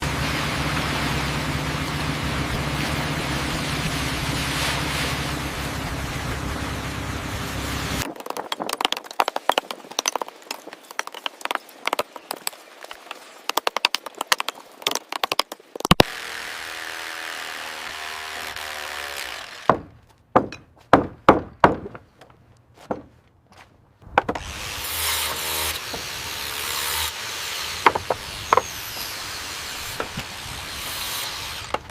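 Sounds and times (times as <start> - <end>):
machine drone with low hum: 0.0 - 8.0
rapid clicking and knocking: 8.0 - 16.0
loud knocks: 19.7 - 22.1, 22.8 - 23.2, 27.8 - 28.7.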